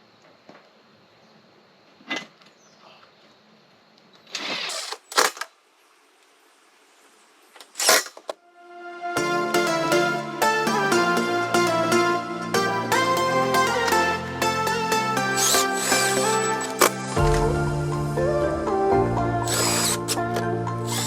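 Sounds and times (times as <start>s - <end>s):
plucked-string background music: 8.6s - 21.0s.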